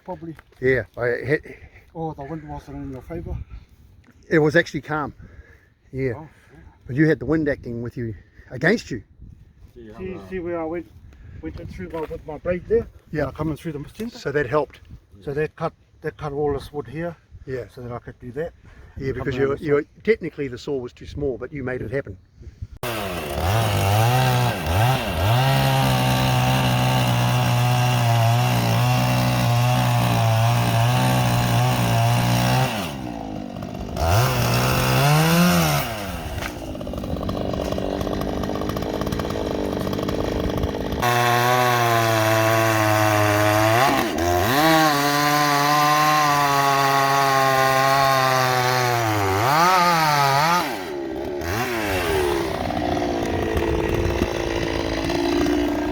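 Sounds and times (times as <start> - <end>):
two-stroke chainsaw revving: 22.8 - 55.9.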